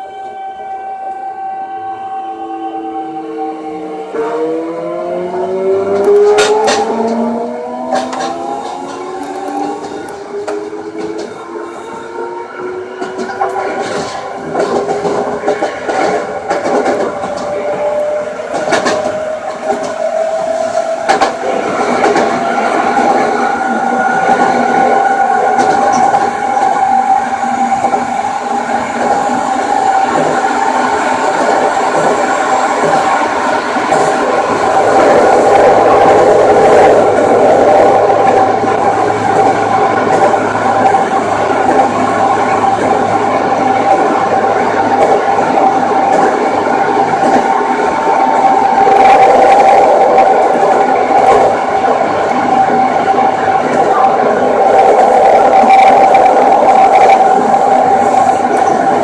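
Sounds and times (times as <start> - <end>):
rail noise: 0.0 - 59.0
subway train motor whine: 0.0 - 59.0.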